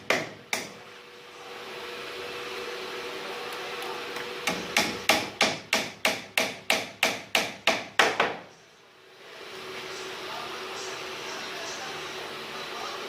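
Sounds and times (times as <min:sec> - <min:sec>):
hammer striking wood: 0:00.0 - 0:00.8, 0:04.4 - 0:08.4.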